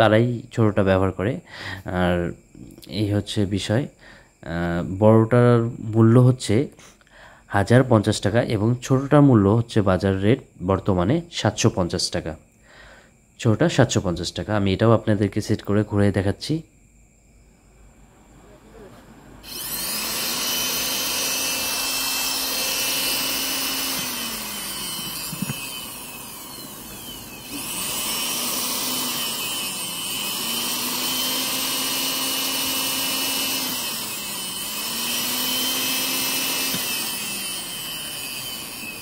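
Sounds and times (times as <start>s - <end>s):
sewing machine motor whining: 19.4s - 39.0s.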